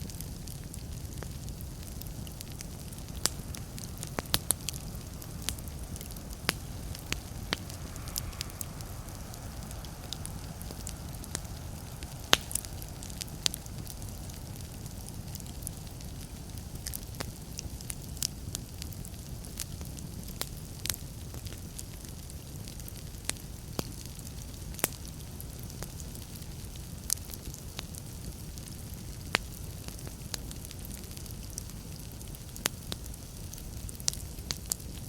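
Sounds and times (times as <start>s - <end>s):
steady low rumble: 0.0s - 24.5s
fireplace fire crackling: 0.0s - 35.0s.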